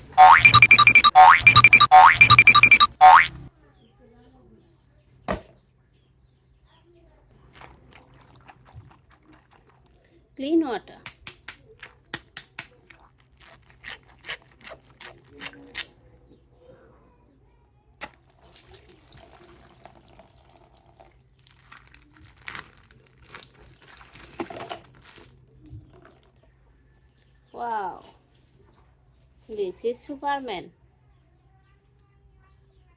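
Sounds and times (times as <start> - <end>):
water running: 7.4 - 10.0.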